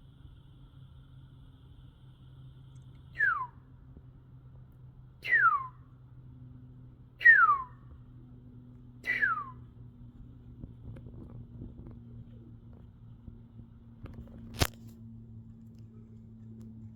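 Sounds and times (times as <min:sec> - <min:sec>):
animal whistled call: 0:03.1 - 0:03.6, 0:05.2 - 0:05.8, 0:07.2 - 0:07.8, 0:09.0 - 0:09.6.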